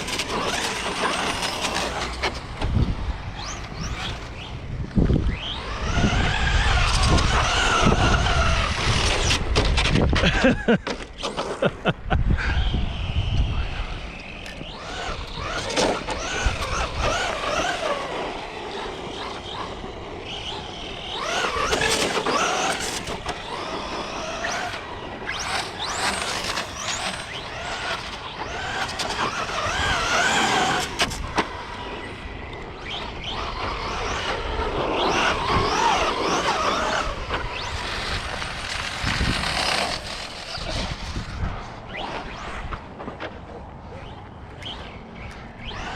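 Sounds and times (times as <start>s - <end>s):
tyres scrubbing on pavement: 0.0s - 4.4s, 14.7s - 32.2s, 33.3s - 43.6s
rc car motors whining: 0.0s - 45.9s.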